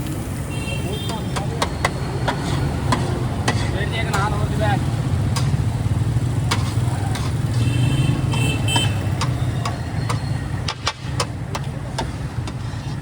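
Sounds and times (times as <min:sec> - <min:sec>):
low engine hum of traffic: 0:00.0 - 0:13.0
sharp clicks and taps: 0:08.2 - 0:12.7.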